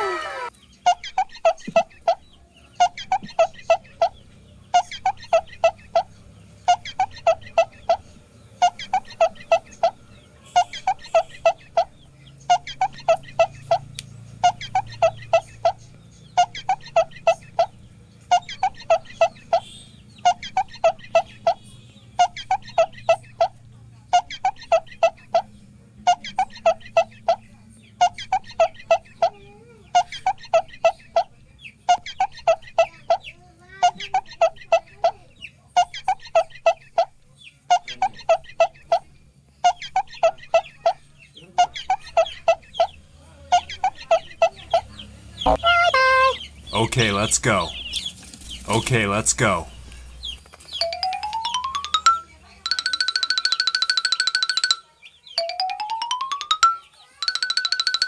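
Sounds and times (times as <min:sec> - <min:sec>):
quick pitched clucking notes: 0:00.0 - 0:02.2, 0:45.5 - 0:47.8.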